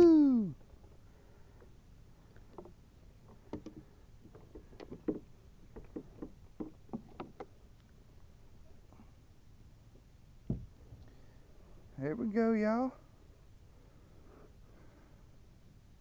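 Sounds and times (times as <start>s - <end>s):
knocks against kayak: 10.5s - 10.7s.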